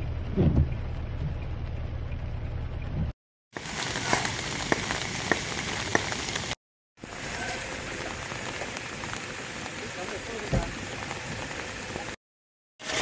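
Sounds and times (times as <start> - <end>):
rain on a wet road: 3.6 - 12.2.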